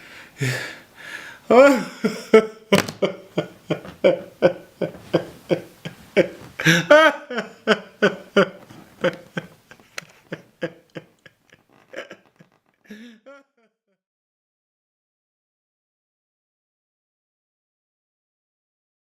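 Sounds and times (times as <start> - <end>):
man sobbing and gasping: 0.0 - 11.1, 11.7 - 13.7
man wailing: 1.5 - 3.3, 6.6 - 8.6.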